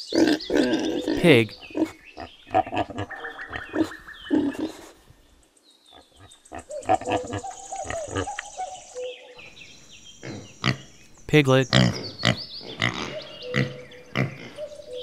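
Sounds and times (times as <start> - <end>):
pigs grunting and squealing: 0.0 - 5.0, 6.0 - 8.4, 10.2 - 11.0, 11.6 - 14.8.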